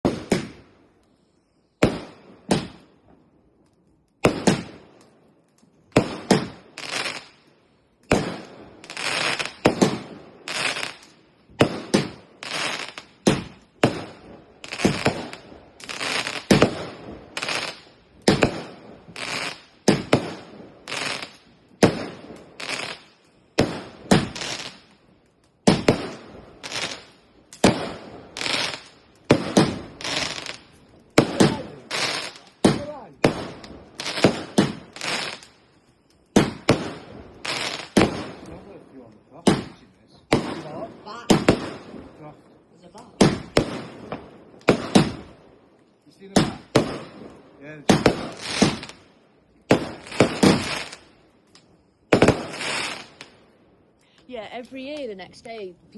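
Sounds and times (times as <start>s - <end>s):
fireworks banging: 0.0s - 0.6s, 1.8s - 3.2s, 4.2s - 5.1s, 5.8s - 7.4s, 8.0s - 24.9s, 25.6s - 35.6s, 36.3s - 55.9s.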